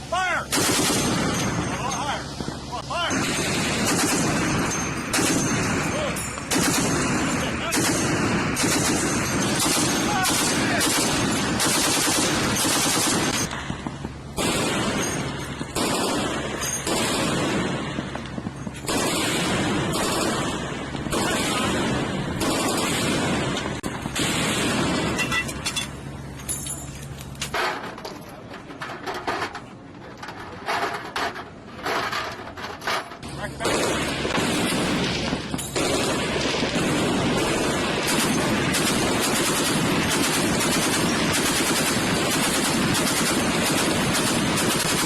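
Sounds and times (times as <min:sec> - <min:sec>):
low machinery hum: 0:00.0 - 0:45.0
anchor chain rattling: 0:25.2 - 0:33.3.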